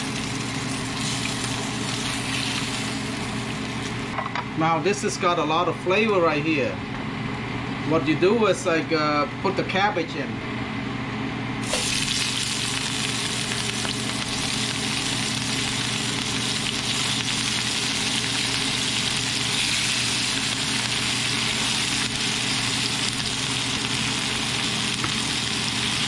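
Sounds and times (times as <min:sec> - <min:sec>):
cabbage sizzling in frying pan: 0:00.0 - 0:04.1, 0:11.6 - 0:26.0.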